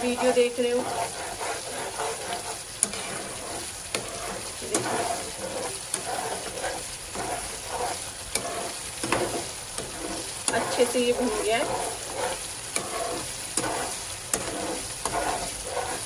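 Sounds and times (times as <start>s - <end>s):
metal spatula scraping pan: 0.0s - 16.0s
minced meat sizzling in oil: 0.0s - 16.0s
spatula clicking against pan: 5.9s - 6.1s, 12.7s - 15.4s.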